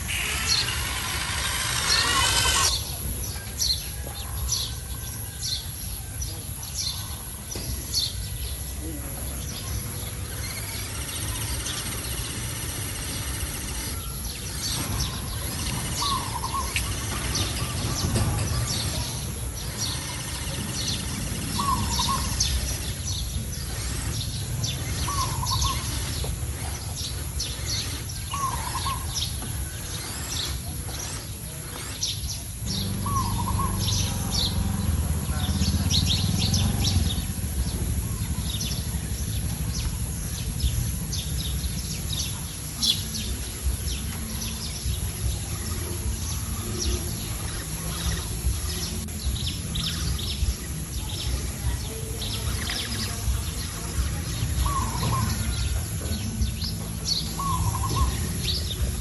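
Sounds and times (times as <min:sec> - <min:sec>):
bird wavering call: 0:00.0 - 0:02.9, 0:19.8 - 0:23.0, 0:32.6 - 0:34.7
birds chirping: 0:00.0 - 0:59.0.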